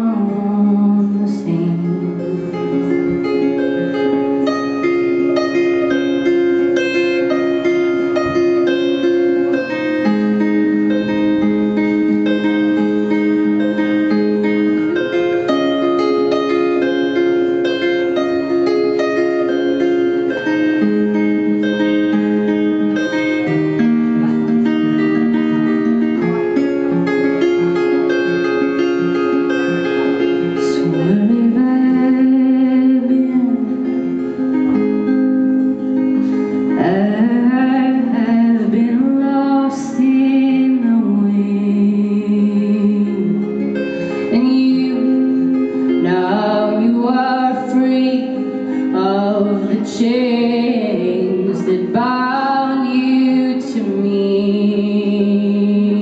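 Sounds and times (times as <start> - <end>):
wordless female vocal: 0.0 - 3.1, 30.6 - 34.0, 36.8 - 56.0
acoustic guitar playing: 0.0 - 56.0.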